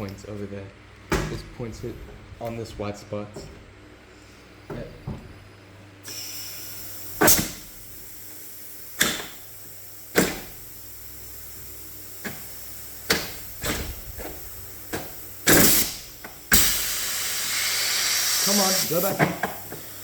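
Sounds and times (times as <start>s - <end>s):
air engine puffs and knocks: 1.1s - 3.8s, 4.6s - 5.5s, 12.2s - 17.1s
compressed air hissing: 3.8s - 20.0s.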